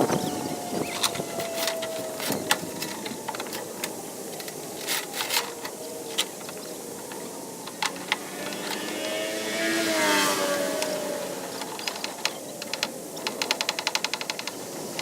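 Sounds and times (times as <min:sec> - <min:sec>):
engine running with whine: 0:00.0 - 0:13.4.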